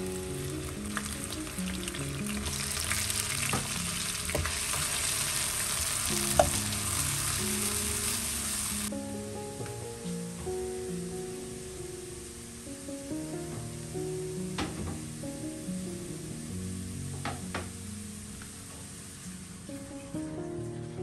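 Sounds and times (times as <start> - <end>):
shallots sizzling in hot oil: 0.0 - 9.0, 10.8 - 20.9.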